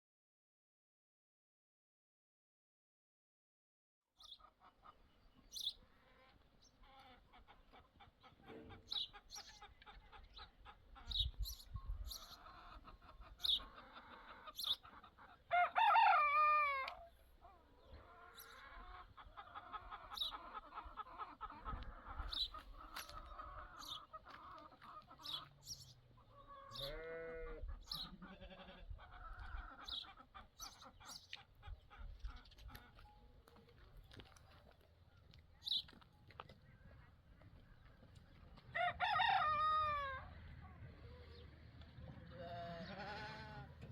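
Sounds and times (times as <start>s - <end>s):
chickens clucking: 4.2s - 43.9s
rooster crowing: 15.5s - 17.1s, 38.7s - 40.4s.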